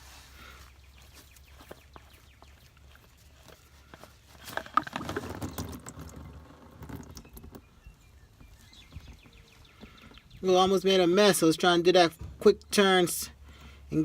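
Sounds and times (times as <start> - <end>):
oil filter clicking and scraping: 1.0 - 10.3
oil splashing and pattering: 1.5 - 7.7.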